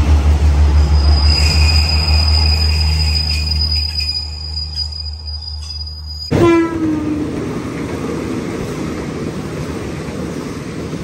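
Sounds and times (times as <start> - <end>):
passing train wheels rumbling: 0.0 - 11.0
train horn: 6.3 - 7.3.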